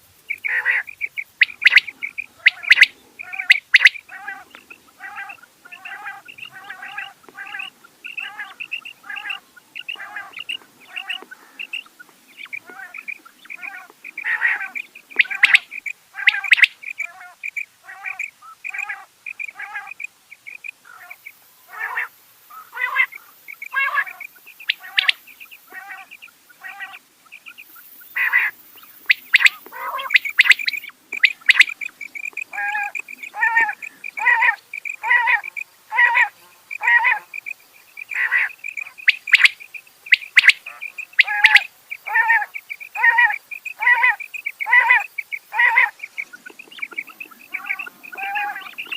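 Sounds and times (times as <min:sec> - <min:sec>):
quail calling: 0:00.0 - 0:48.9.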